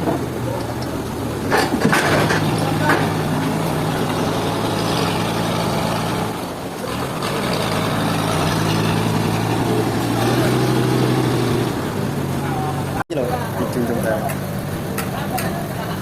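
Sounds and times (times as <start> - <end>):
sawmill machinery humming: 1.6 - 13.0.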